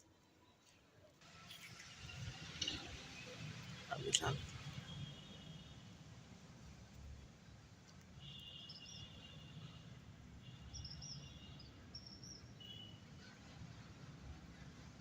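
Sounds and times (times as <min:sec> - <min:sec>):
bird chirping: 0:10.7 - 0:12.9.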